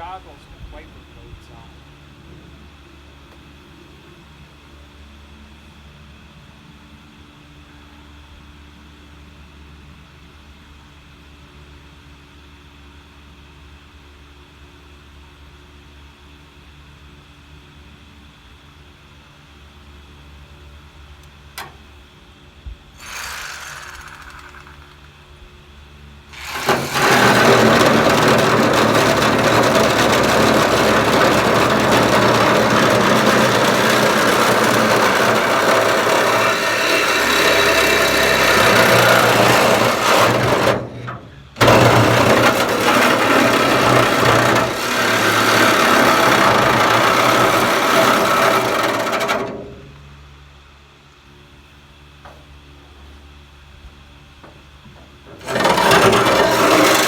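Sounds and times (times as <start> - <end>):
power tool cutting sheet steel: 23.0 - 25.1, 26.3 - 49.5, 55.4 - 57.0.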